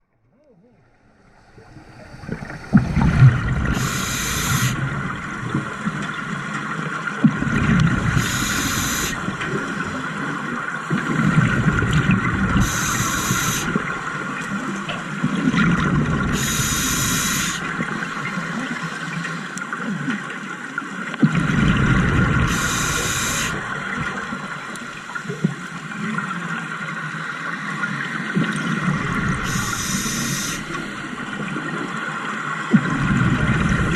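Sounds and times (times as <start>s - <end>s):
faint steady whine: 0.0s - 7.2s, 21.9s - 33.9s
exhaled bubbles rumbling: 0.3s - 18.4s, 21.2s - 26.7s, 27.8s - 33.9s
regulator inhalation hiss: 1.2s - 5.0s, 8.2s - 9.3s, 12.6s - 13.8s, 16.3s - 17.7s, 22.5s - 24.0s, 29.4s - 31.1s.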